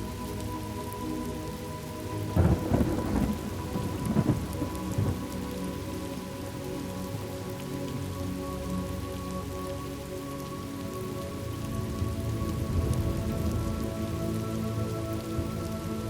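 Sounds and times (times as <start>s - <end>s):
steady rain: 0.0s - 16.0s
thunderclap with rolling rumble: 2.4s - 5.3s.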